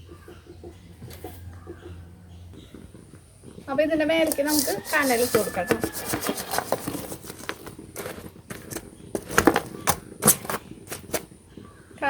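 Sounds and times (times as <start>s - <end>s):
embers clinking on metal lid: 4.1s - 11.3s.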